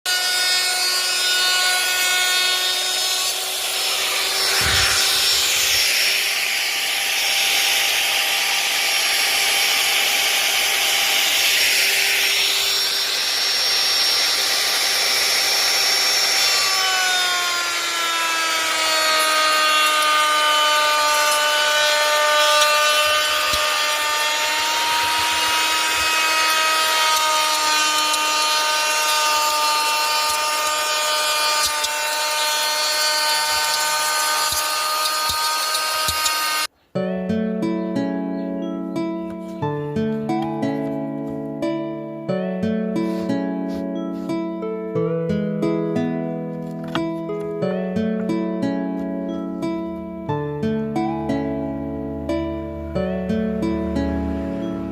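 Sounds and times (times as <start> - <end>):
rasping wood cut: 0.0 - 36.7
power tool motor whine: 0.1 - 36.7.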